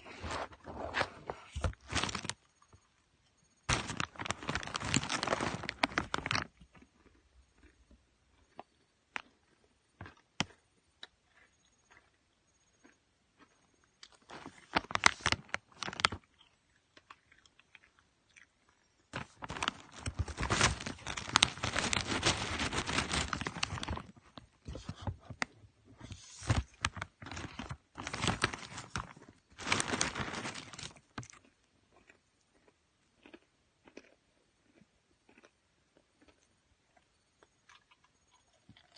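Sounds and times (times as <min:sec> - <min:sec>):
person chewing crunchy snack: 0:03.7 - 0:25.5, 0:26.2 - 0:38.9.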